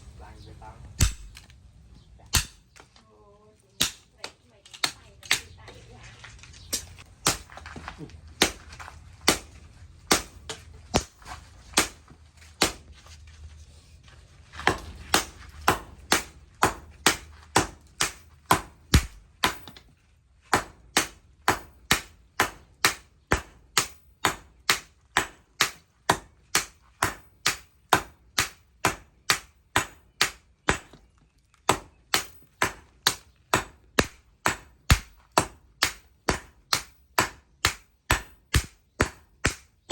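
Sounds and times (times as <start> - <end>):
hammer on steel over anvil: 2.3 - 2.6.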